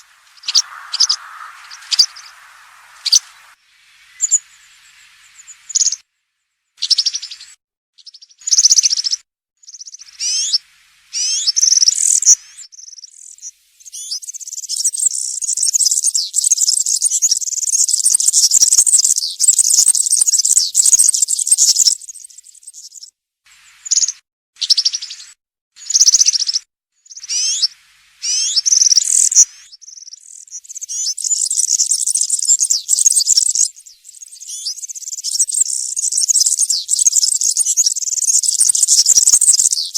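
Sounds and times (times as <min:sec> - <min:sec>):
bird singing: 0:00.0 - 0:06.0, 0:27.1 - 0:39.9.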